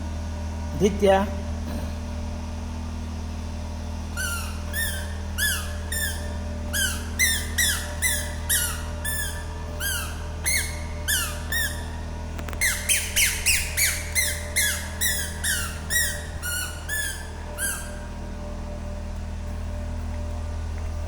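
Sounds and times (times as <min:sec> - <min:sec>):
steady low hum: 0:00.0 - 0:21.0
short high squeaks: 0:04.0 - 0:18.3.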